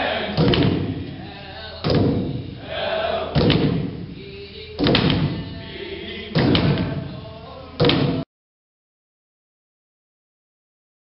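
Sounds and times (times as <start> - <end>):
heavy thumps: 0.0 - 1.2, 1.8 - 2.6, 3.3 - 4.2, 4.8 - 5.6, 6.3 - 7.2, 7.8 - 8.2
group of voices: 0.0 - 3.8.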